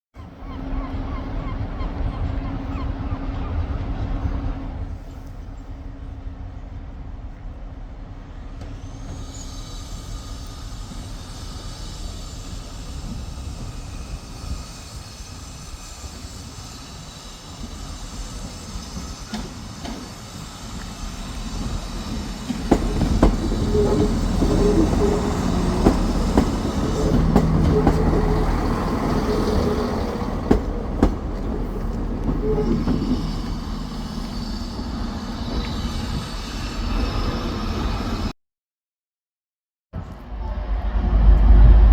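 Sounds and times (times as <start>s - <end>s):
train rumble: 0.2s - 38.3s, 40.0s - 41.9s
wheels clicking over rail joints: 21.6s - 34.3s
engine drone: 40.0s - 41.9s.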